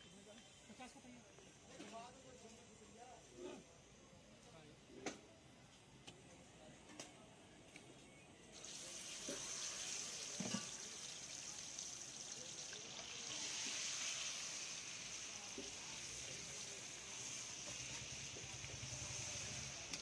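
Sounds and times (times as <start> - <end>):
food sizzling on oiled griddle: 8.6 - 20.0.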